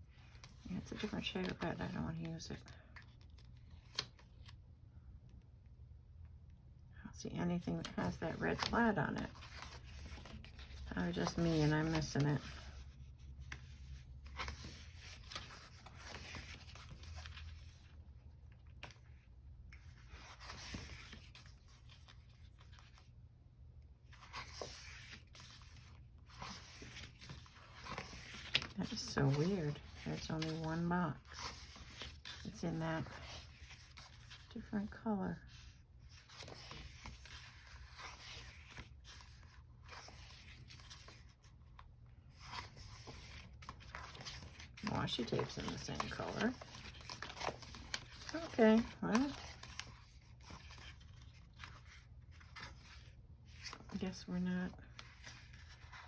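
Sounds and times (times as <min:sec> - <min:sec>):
paper sheets rustling and scraping: 0:07.8 - 0:17.9, 0:24.1 - 0:34.5, 0:42.3 - 0:54.0.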